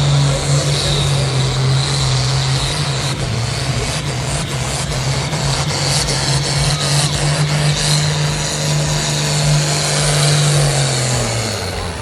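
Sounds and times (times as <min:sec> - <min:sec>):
engine running hard: 0:00.0 - 0:12.0
loud exhaust noise: 0:00.0 - 0:12.0.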